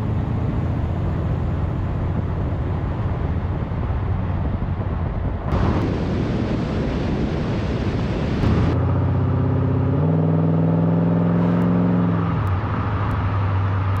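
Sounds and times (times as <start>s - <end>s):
car engine revving: 5.5s - 14.0s.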